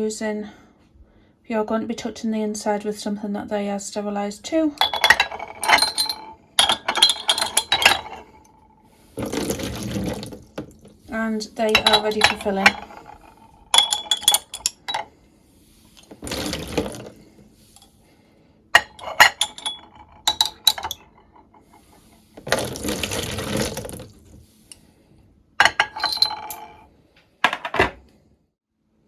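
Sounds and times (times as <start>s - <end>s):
glass jars clinking: 4.8s - 10.9s, 11.6s - 15.1s, 16.0s - 17.1s, 18.8s - 24.0s, 25.6s - 26.8s, 27.4s - 28.0s
water pouring or splashing: 9.1s - 11.0s, 21.8s - 24.4s.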